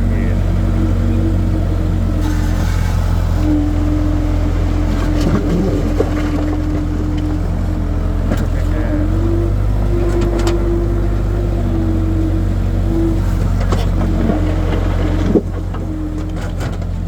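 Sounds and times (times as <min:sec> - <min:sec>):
skid steer engine running: 0:00.0 - 0:17.0.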